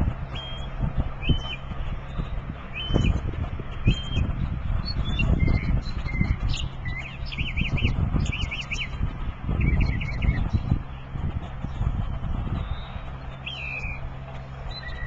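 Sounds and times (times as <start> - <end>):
loud uneven low rumbling: 0.0 - 15.0
songbird singing whistled phrases: 0.4 - 1.6, 12.6 - 14.0.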